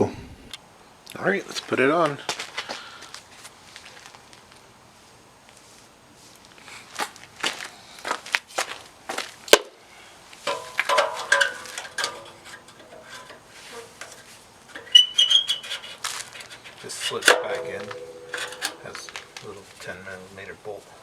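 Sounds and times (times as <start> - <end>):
metal clattering and scraping: 10.4 - 20.0
metallic knocks and clinks: 10.5 - 13.4, 14.0 - 19.4.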